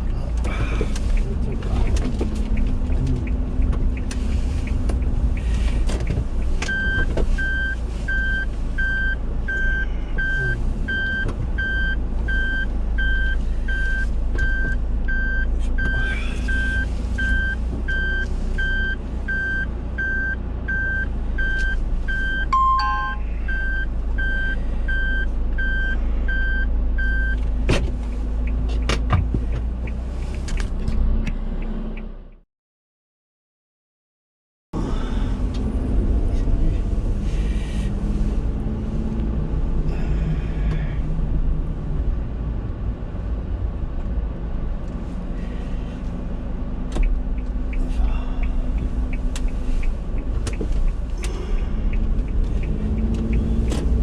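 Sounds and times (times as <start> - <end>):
low engine and road rumble: 0.0 - 32.4, 34.8 - 54.0
reversing warning beeps: 6.7 - 27.4
two-note chime: 22.5 - 23.2.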